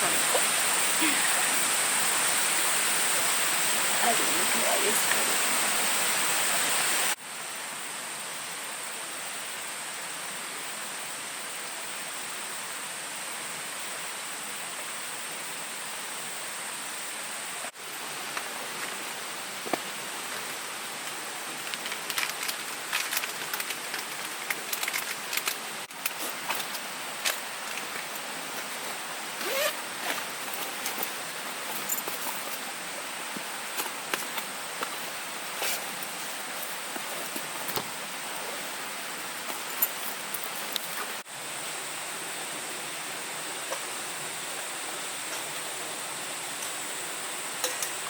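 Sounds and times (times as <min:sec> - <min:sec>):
forest ambience hiss: 0:00.0 - 0:48.0
high insect drone: 0:00.0 - 0:48.0
sharp crackles and clicks: 0:21.6 - 0:28.2.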